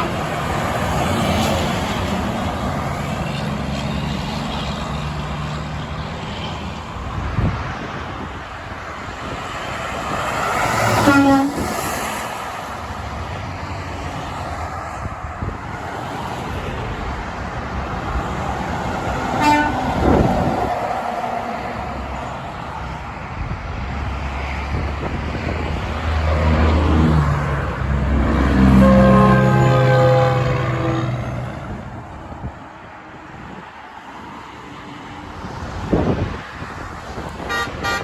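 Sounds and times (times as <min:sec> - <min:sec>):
heavy road traffic: 0:00.0 - 0:38.0
heavy vehicle drone: 0:15.0 - 0:33.6.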